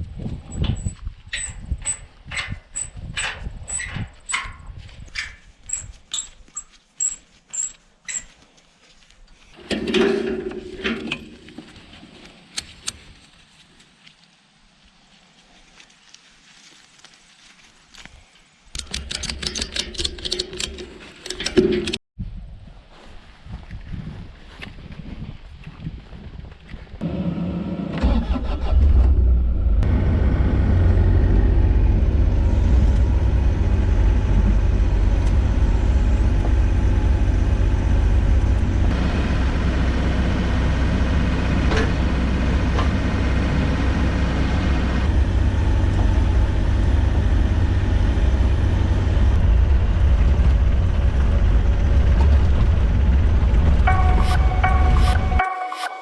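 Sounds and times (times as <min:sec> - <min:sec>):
heavy low rumble: 0:28.8 - 0:55.4
vehicle engine running: 0:29.1 - 0:55.4
music: 0:53.9 - 0:56.0.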